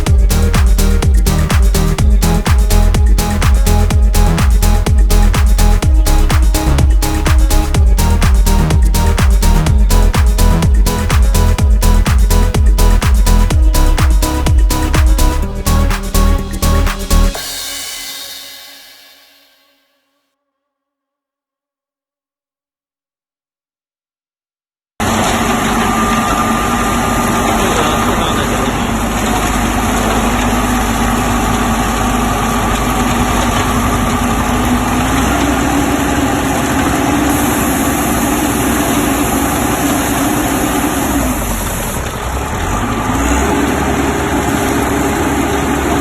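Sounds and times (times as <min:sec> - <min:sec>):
truck engine running: 0:00.0 - 0:17.4, 0:25.0 - 0:46.0.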